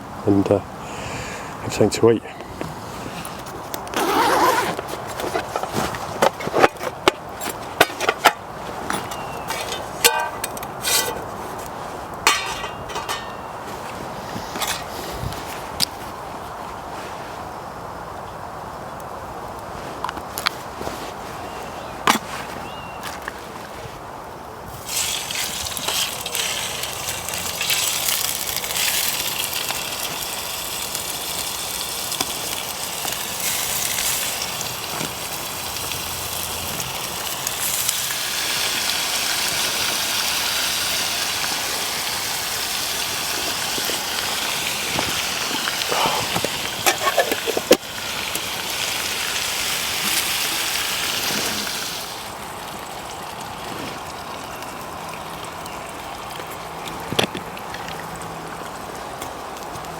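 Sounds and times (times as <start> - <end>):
campfire crackle: 0.0 - 59.9
bacon sizzling in a pan: 24.8 - 53.4.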